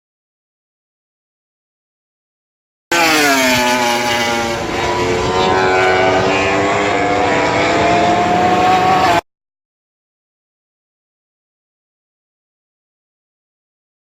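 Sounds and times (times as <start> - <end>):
racing motorcycle passing at full throttle: 2.9 - 9.2.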